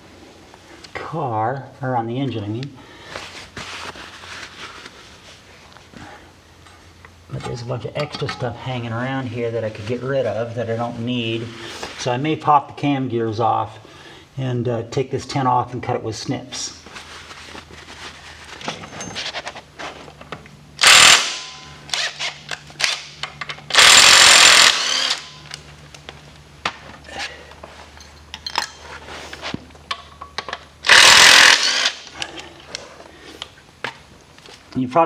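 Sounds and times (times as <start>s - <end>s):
tool handling clicks: 20.3s - 26.2s
impact wrench hammering: 20.8s - 22.2s, 22.9s - 25.6s, 30.8s - 32.2s.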